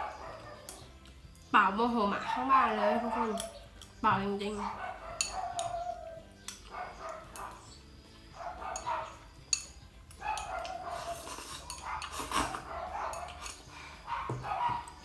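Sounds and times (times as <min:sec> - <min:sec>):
dog barking loudly: 0:00.0 - 0:00.7, 0:02.3 - 0:03.6, 0:04.5 - 0:07.6, 0:08.4 - 0:09.2, 0:10.2 - 0:13.4, 0:14.0 - 0:15.0.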